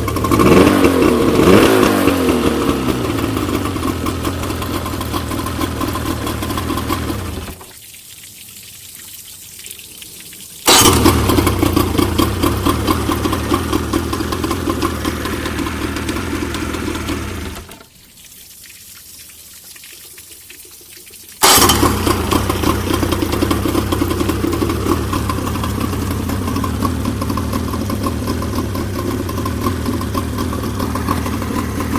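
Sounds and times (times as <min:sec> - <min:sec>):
outboard motor running: 0:00.0 - 0:07.7, 0:10.7 - 0:17.9, 0:21.4 - 0:31.9.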